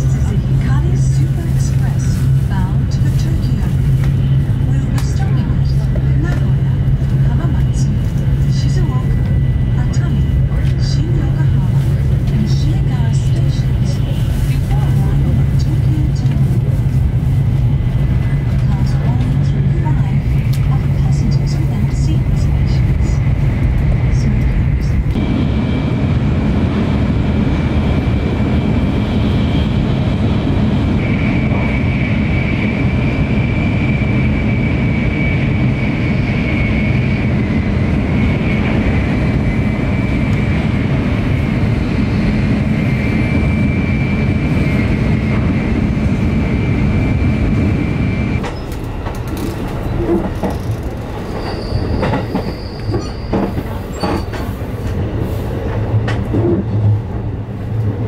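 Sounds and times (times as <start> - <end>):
train rumbling on rails: 0.0 - 58.0
high-pitched whine: 28.1 - 40.6.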